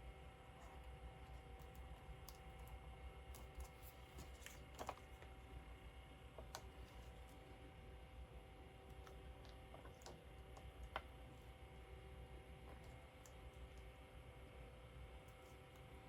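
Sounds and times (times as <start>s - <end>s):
faint steady hum: 0.0s - 16.0s
small clicks and taps: 8.9s - 11.2s.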